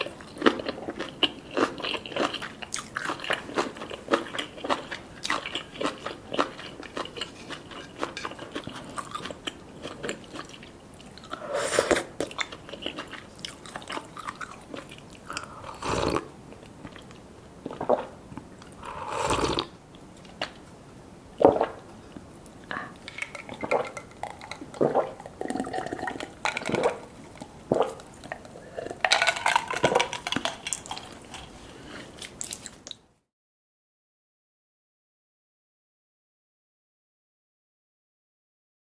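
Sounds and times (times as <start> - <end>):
food being bitten and chewed: 0.0 - 20.6, 21.4 - 33.0.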